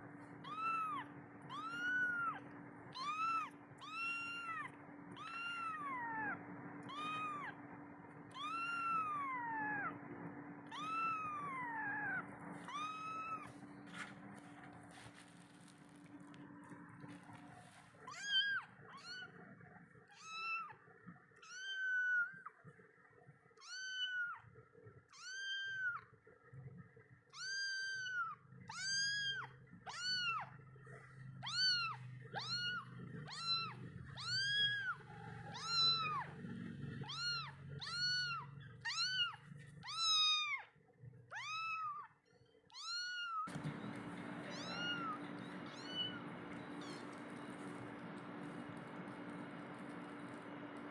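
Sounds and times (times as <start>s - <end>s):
kitten meowing: 0.4s - 7.6s, 8.3s - 10.0s, 10.6s - 13.6s, 18.0s - 19.4s, 20.1s - 20.8s, 21.4s - 22.6s, 23.6s - 24.4s, 25.1s - 26.1s, 27.3s - 30.6s, 31.4s - 36.4s, 37.0s - 42.1s, 42.7s - 43.6s, 44.4s - 46.2s.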